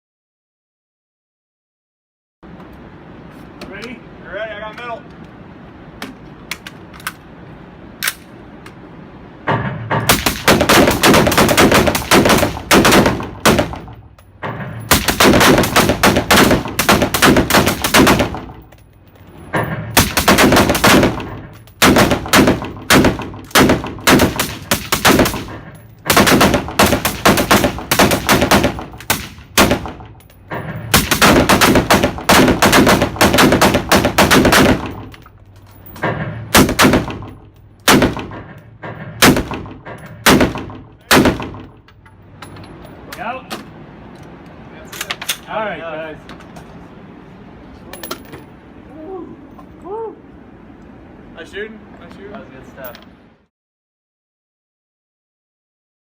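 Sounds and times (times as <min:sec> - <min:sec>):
rapid gunfire: 0:10.1 - 0:13.9, 0:14.9 - 0:18.6, 0:20.0 - 0:25.5, 0:26.1 - 0:30.0, 0:30.9 - 0:35.0, 0:36.6 - 0:37.2.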